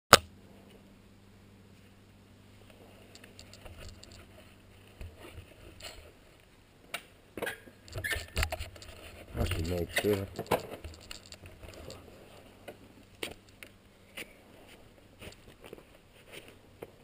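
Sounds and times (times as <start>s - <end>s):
low steady hum: 0.1s - 17.0s
handling rustles and knocks: 2.6s - 6.5s, 7.4s - 17.0s.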